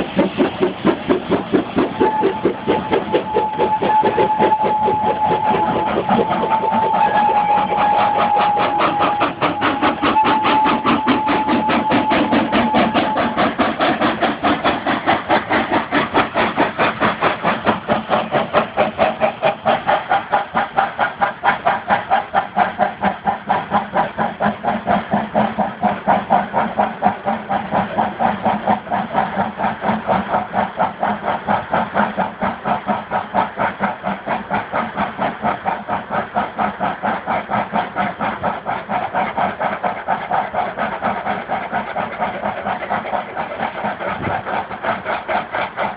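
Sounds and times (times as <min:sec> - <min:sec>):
steam locomotive exhaust beating: 0:00.0 - 0:45.9
steady high tone: 0:02.0 - 0:13.4.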